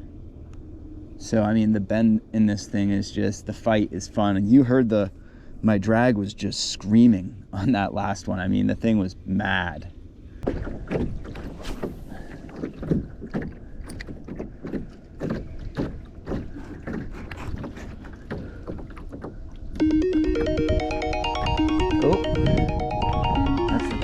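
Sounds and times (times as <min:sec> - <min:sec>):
wind rumbling on microphone: 0:09.9 - 0:19.8, 0:21.4 - 0:24.0
paddle splashing and knocking: 0:10.4 - 0:19.9
synthesizer music: 0:19.8 - 0:24.0.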